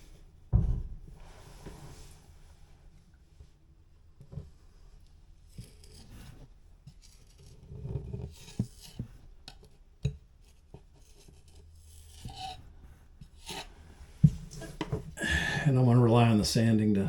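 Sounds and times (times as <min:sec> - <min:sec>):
putty knife scraping: 0:10.5 - 0:12.6, 0:13.2 - 0:15.1.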